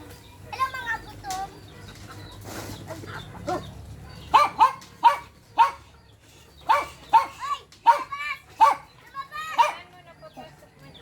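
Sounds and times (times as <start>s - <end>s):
dog barking: 4.3s - 5.9s, 6.6s - 8.9s, 9.5s - 9.9s.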